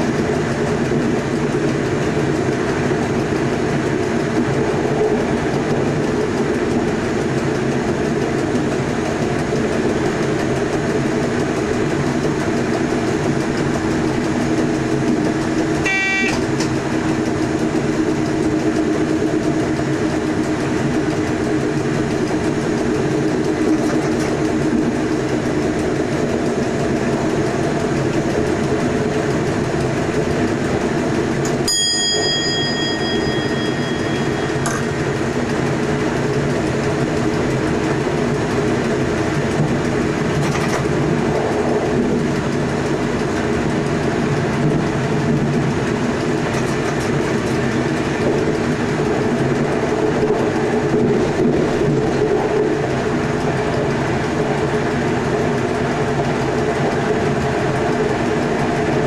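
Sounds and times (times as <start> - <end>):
electric train running: 0.0 - 59.0
short pitched beep: 15.8 - 16.5
cab bell ringing: 31.7 - 35.3.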